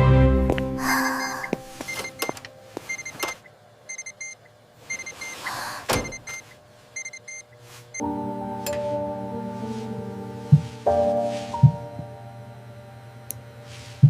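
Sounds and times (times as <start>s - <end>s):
monitor alarm beeping: 1.4s - 5.4s, 6.0s - 8.0s.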